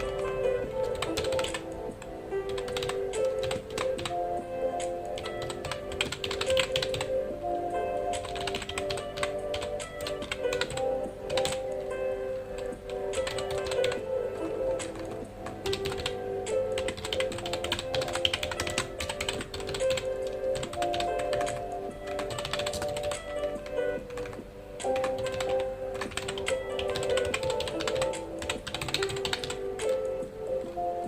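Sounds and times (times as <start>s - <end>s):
computer keyboard typing: 0.0s - 7.3s, 8.0s - 30.8s
soft background music: 0.0s - 31.0s.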